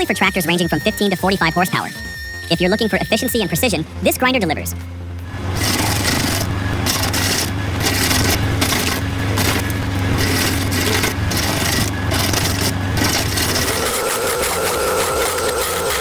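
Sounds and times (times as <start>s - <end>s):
stump grinder grinding wood: 0.0s - 16.0s
low engine hum: 3.4s - 14.5s.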